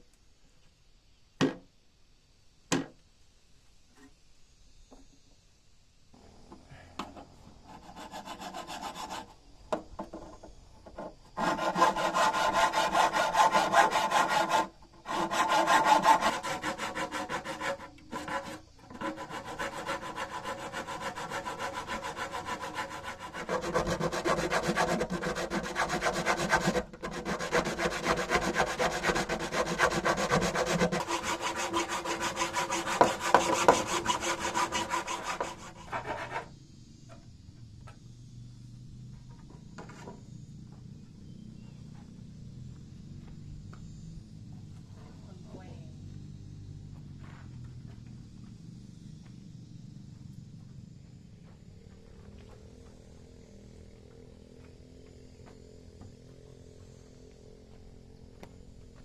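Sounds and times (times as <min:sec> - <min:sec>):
hand tool scraping wood: 0:07.0 - 0:36.5.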